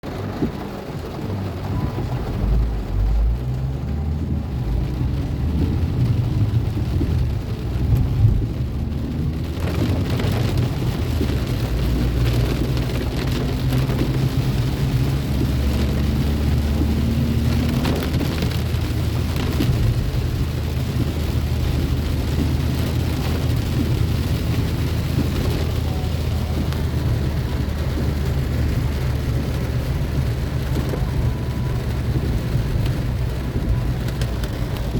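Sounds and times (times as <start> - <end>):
deep low rumble: 0.0 - 34.9
heavy rain falling: 0.0 - 34.9.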